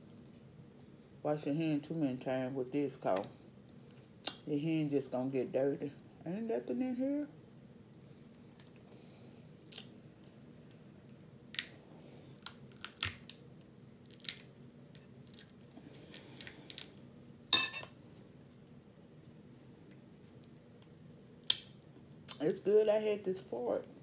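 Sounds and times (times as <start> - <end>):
crab shells cracking: 11.5 - 11.8, 12.4 - 13.4, 14.0 - 14.5, 15.2 - 16.9, 20.8 - 22.5.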